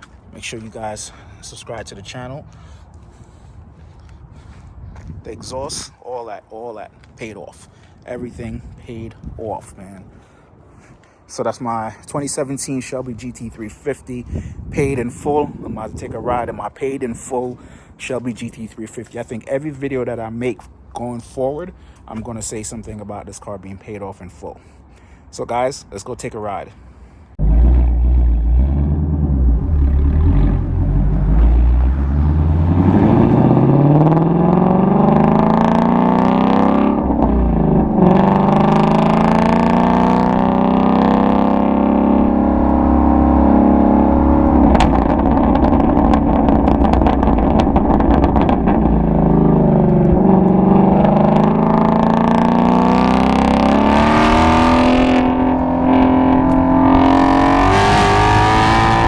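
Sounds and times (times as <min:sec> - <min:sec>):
car engine revving: 0:27.4 - 0:59.0
exhaust pops and crackles: 0:44.2 - 0:53.7, 0:54.7 - 0:57.4.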